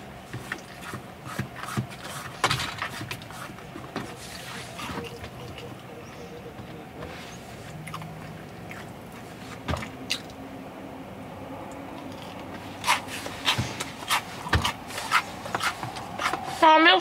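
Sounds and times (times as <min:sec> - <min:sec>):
chewing and lip-smacking: 0:00.5 - 0:06.2, 0:07.6 - 0:10.4, 0:11.7 - 0:16.6.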